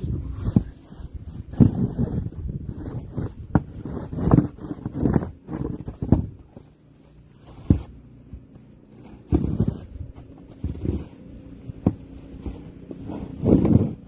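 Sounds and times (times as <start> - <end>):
snow shovel scraping and thudding: 0.3 - 14.0.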